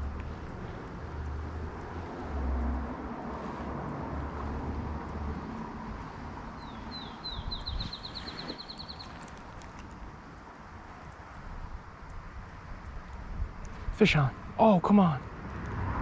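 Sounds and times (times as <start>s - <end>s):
low rumbles: 0.0s - 7.9s
creek water flowing: 0.0s - 12.1s
songbird singing trills: 6.4s - 9.6s.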